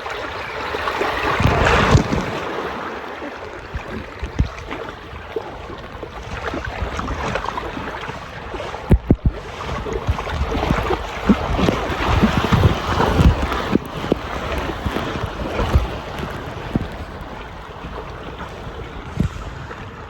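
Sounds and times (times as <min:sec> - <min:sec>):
wind buffeting microphone: 0:00.0 - 0:20.0
steady rushing noise: 0:08.1 - 0:20.0.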